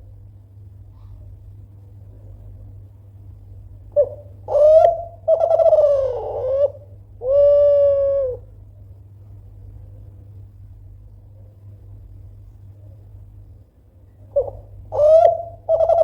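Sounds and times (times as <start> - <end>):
dove cooing: 3.9 - 8.5, 14.3 - 16.0.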